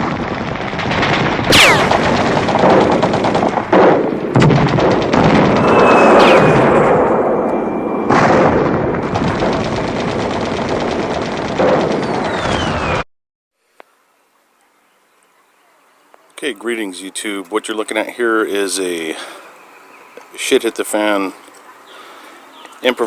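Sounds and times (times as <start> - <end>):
rapid automatic gunfire: 0.0 - 6.8, 8.1 - 12.9
falling whistling tones: 1.5 - 2.2, 5.5 - 8.2, 12.0 - 13.0.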